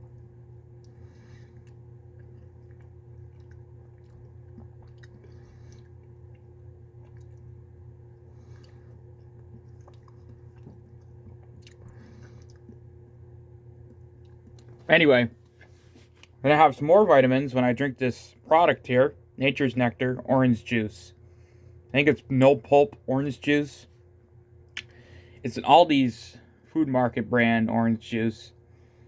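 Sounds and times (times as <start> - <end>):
person chewing: 0.0 - 14.8
low hum: 0.0 - 29.0.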